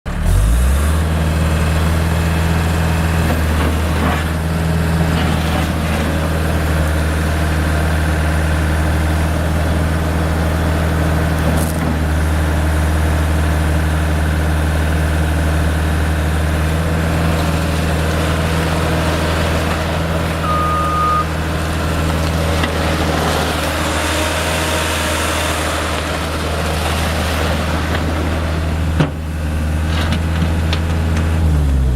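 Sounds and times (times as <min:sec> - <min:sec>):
diesel engine idling: 0:00.1 - 0:31.9
short beep: 0:20.4 - 0:21.3.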